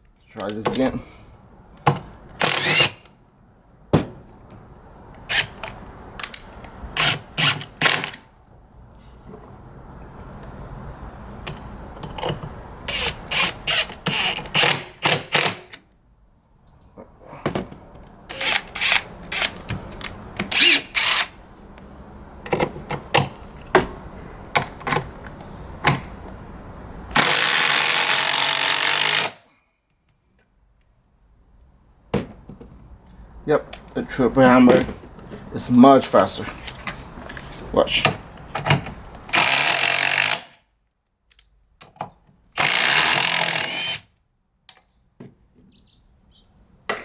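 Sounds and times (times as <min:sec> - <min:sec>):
impact drivers hammering screws: 0:01.9 - 0:03.1, 0:05.3 - 0:06.4, 0:07.0 - 0:08.2, 0:12.9 - 0:15.8, 0:18.3 - 0:21.4, 0:27.1 - 0:29.4, 0:38.6 - 0:40.6, 0:42.6 - 0:44.1.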